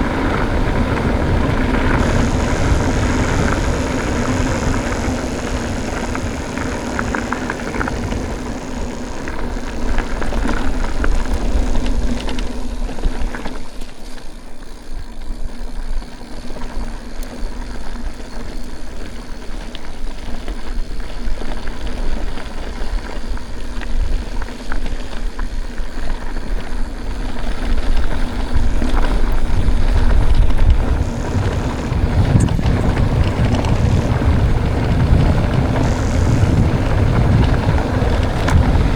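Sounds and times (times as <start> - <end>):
wind on microphone: 0.0 - 12.2, 28.5 - 38.9
steady hum: 0.0 - 13.4, 29.6 - 38.9
bike tyre and frame rumble: 0.0 - 38.9.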